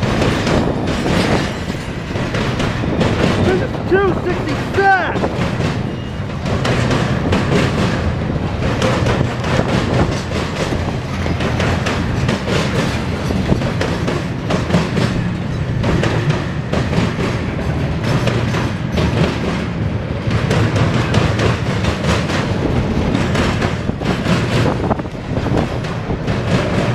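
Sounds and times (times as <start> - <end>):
freight train rumbling past: 0.0 - 26.9
wheels clacking over rail joints: 0.0 - 26.9.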